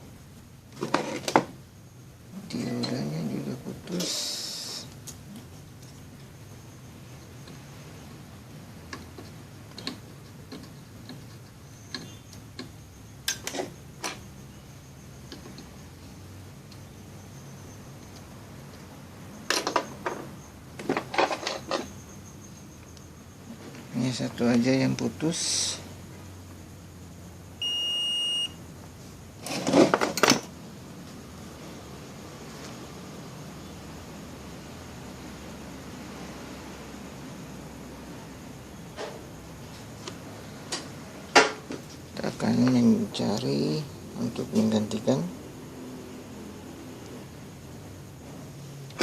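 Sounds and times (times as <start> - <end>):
small tools clicking and tapping: 8.9 - 14.2
multimeter high beep: 27.6 - 28.6.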